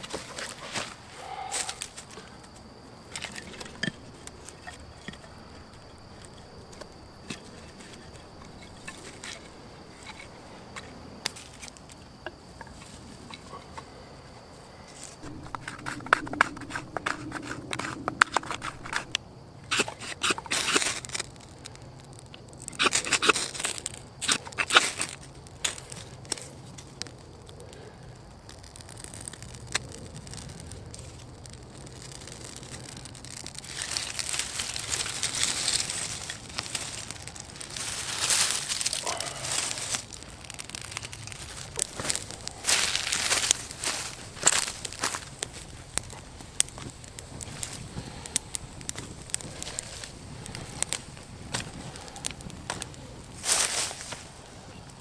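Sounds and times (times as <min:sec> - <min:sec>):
crunching and scraping: 0:15.0 - 0:27.1, 0:27.7 - 0:55.0
sticks and leaves snapping: 0:28.5 - 0:54.4.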